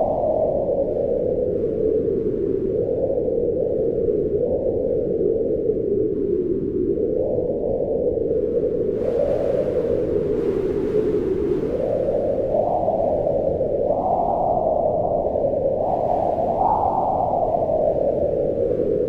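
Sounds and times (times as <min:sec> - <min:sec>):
howling wind: 0:00.0 - 0:19.0.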